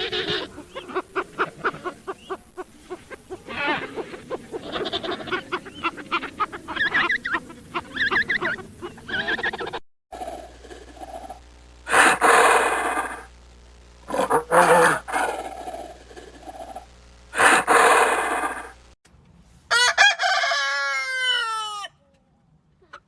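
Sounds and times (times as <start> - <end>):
animal chattering cries: 0.0 - 9.8.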